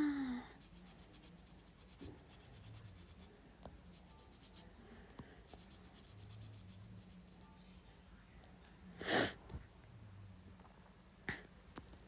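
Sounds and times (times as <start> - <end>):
scratching on paper: 0.5 - 7.5.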